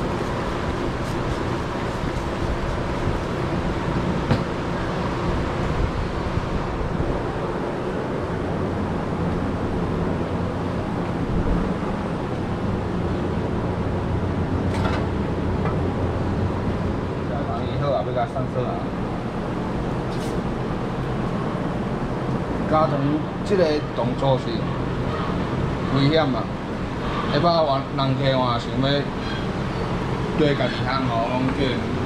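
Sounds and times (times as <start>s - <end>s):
machine humming and rumbling: 0.0s - 17.8s.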